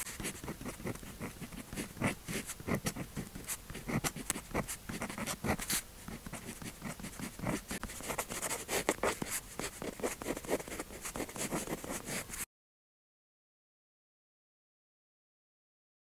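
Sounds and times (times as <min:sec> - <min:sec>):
pen scratching on paper: 0:00.0 - 0:12.5.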